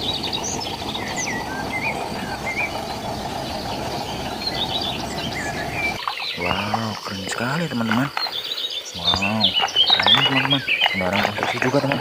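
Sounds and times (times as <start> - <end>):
low rushing noise: 0.0 - 6.0
birds chirping: 0.0 - 12.0.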